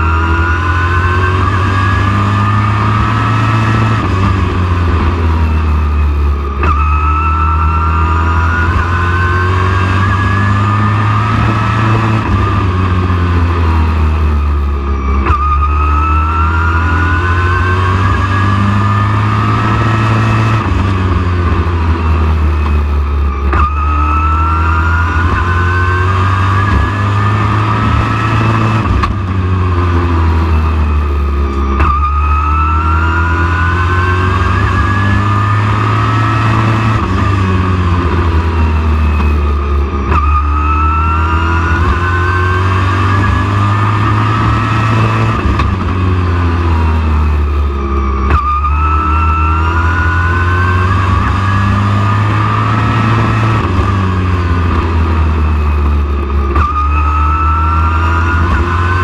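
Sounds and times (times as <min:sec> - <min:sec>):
race truck engine revving: 0:00.0 - 0:59.0
constant low rumble: 0:26.5 - 0:32.4, 0:43.1 - 0:48.8.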